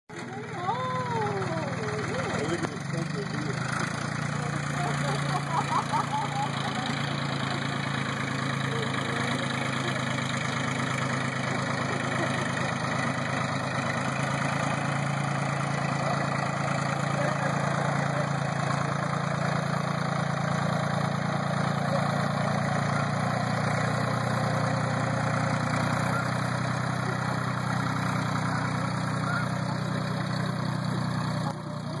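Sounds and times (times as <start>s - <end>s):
tractor engine running: 0.1s - 32.0s.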